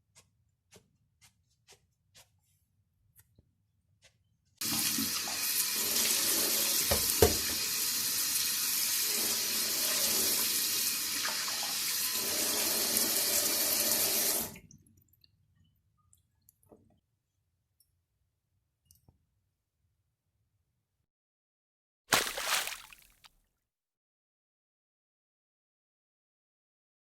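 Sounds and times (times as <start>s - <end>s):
tap water running into sink: 4.6s - 14.6s.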